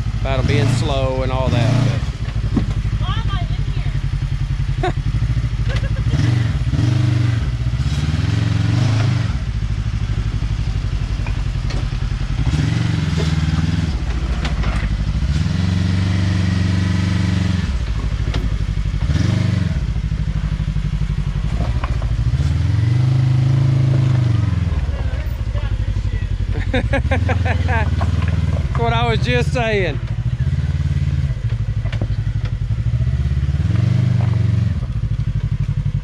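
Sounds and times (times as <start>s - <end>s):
engine revving in bursts: 0.0s - 2.2s, 4.8s - 9.5s, 12.3s - 17.9s, 18.9s - 20.0s, 21.4s - 31.4s, 32.6s - 34.9s.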